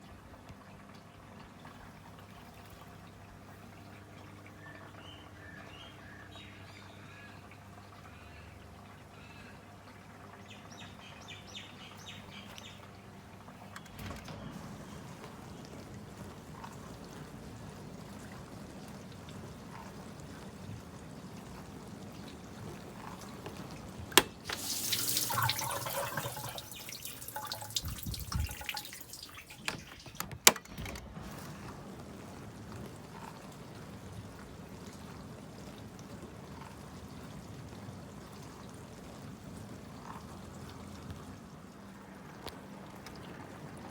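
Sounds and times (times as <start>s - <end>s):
rush of water: 9.5s - 43.9s
dishwasher water sloshing: 10.8s - 43.9s.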